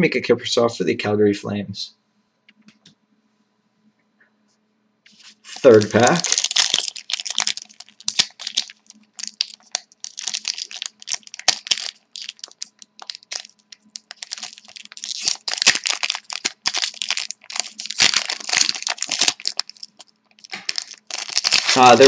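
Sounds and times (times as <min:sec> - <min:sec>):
cards being handled: 0:05.1 - 0:06.8
wrapper tearing and crinkling: 0:05.1 - 0:22.0.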